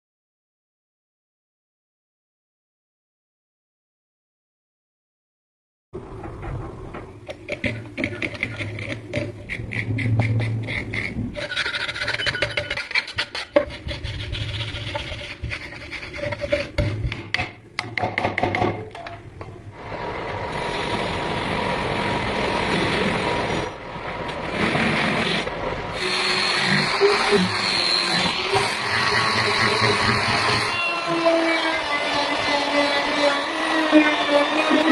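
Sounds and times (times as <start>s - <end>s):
knife blade scraping on abrasive: 7.7s - 17.1s.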